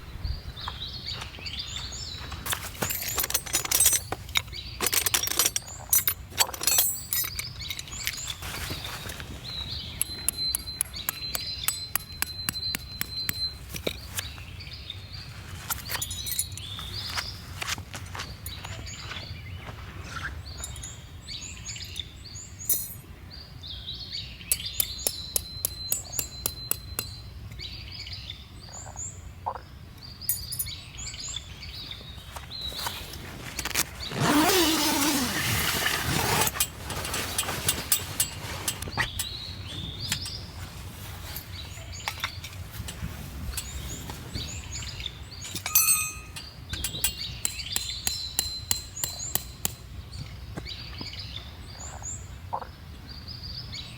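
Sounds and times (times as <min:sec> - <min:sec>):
small birds chirping: 0:00.0 - 0:53.9
sharp clicks and knocks: 0:10.0 - 0:14.3, 0:45.4 - 0:50.3.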